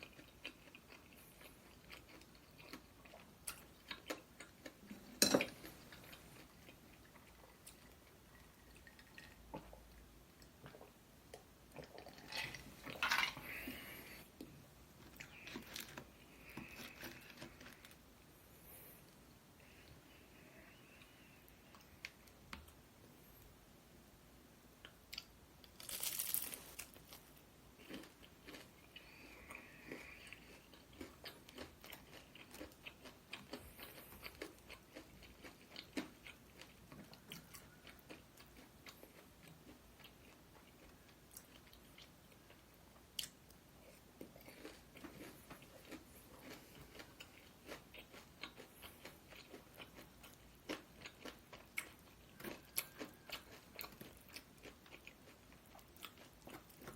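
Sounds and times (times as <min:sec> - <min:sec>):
person chewing food: 0:00.0 - 0:23.5, 0:24.8 - 0:56.9
crunchy bite: 0:25.8 - 0:27.2.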